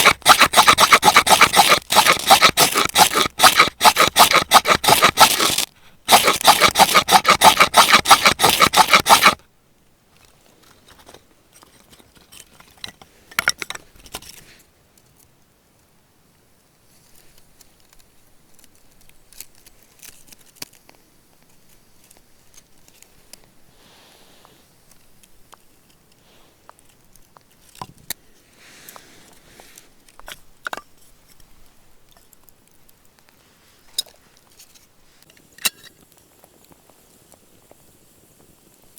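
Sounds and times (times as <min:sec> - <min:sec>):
rapid scraping strokes: 0:00.0 - 0:09.4
faint rustles and clicks: 0:16.8 - 0:38.9.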